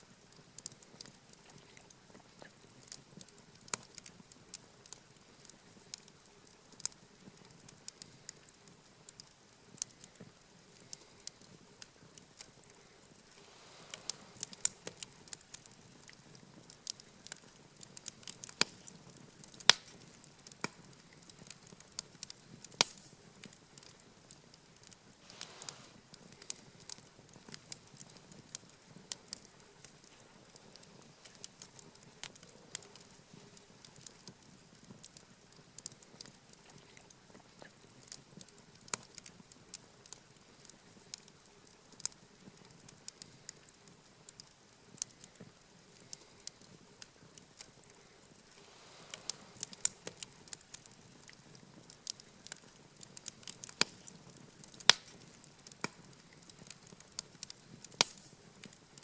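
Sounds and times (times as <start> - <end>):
campfire crackling: 0.0 - 59.0
sharp pops and snaps: 0.6 - 58.8.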